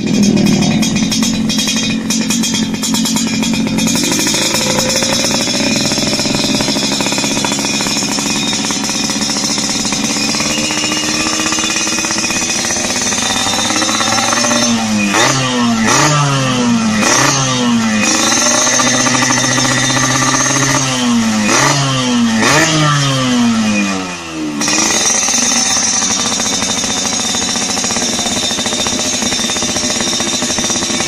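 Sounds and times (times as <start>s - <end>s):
engine throttle blips: 0.0s - 31.0s
motorcycle engine running: 0.0s - 31.0s.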